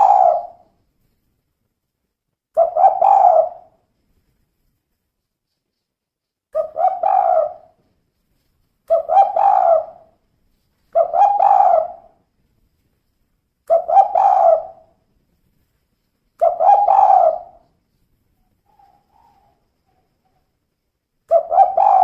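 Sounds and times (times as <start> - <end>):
dove cooing: 0.0 - 0.7, 2.6 - 3.8, 6.6 - 7.8, 8.9 - 10.1, 10.9 - 12.2, 13.7 - 15.0, 16.4 - 17.7, 18.6 - 20.1, 21.3 - 22.0.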